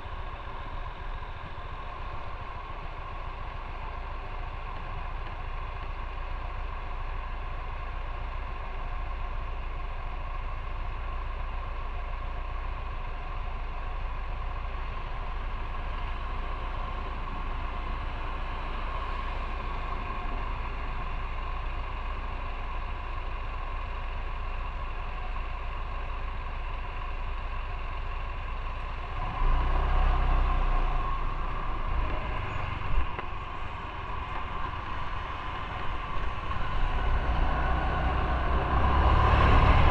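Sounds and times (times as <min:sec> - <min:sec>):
motorcycle engine: 0:14.4 - 0:39.9
low rumble: 0:30.3 - 0:39.9.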